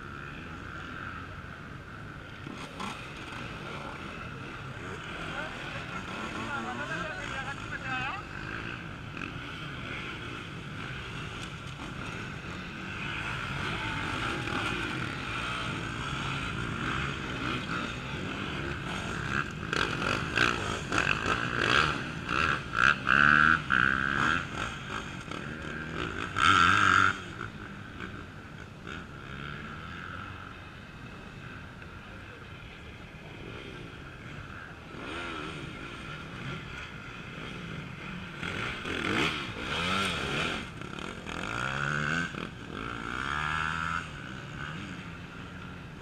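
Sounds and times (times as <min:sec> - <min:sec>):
motorcycle engines revving: 0:00.0 - 0:46.0.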